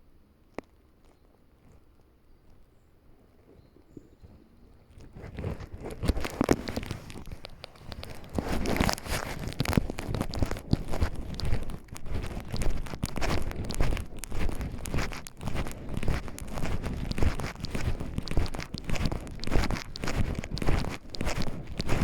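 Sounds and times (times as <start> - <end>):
brush rustling: 4.9 - 22.0
footsteps crunching through undergrowth: 5.0 - 22.0.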